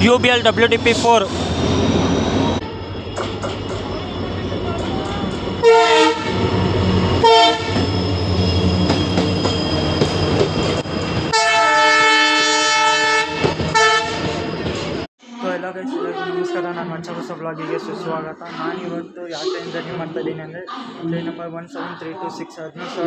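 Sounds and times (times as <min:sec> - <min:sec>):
train engine and wheels rumbling: 0:00.0 - 0:15.1
locomotive horn blasts: 0:05.6 - 0:06.6, 0:07.2 - 0:07.9, 0:11.3 - 0:14.3.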